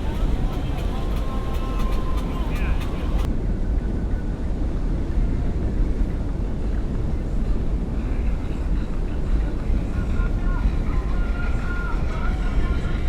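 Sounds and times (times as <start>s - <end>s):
outboard motor running: 0.0s - 3.3s.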